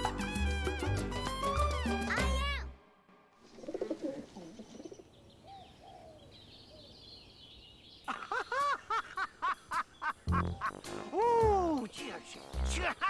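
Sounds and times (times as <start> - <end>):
birds calling: 3.4 - 13.0.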